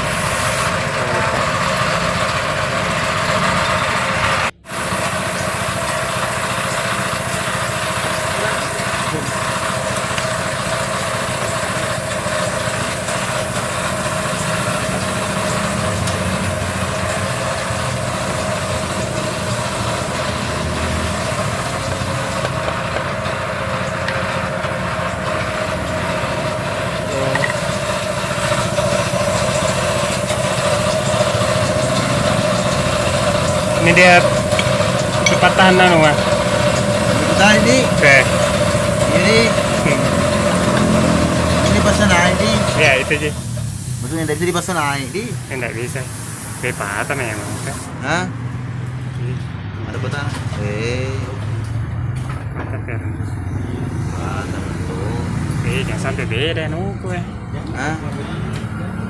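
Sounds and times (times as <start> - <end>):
small engine running: 0.0 - 59.0.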